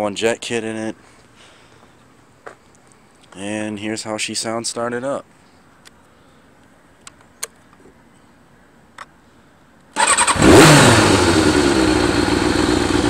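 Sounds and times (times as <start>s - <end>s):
motorcycle engine starting and idling: 10.0s - 13.0s.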